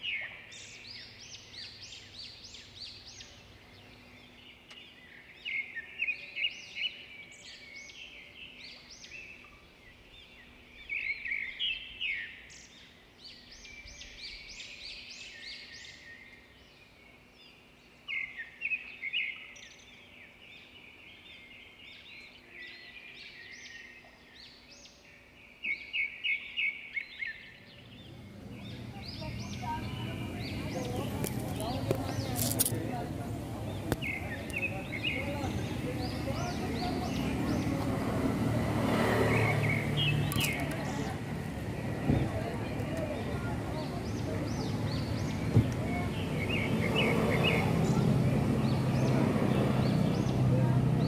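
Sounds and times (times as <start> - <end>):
birds chirping and singing: 0.0 - 51.0
faint low hum: 27.6 - 38.0
low rumble: 27.8 - 36.3.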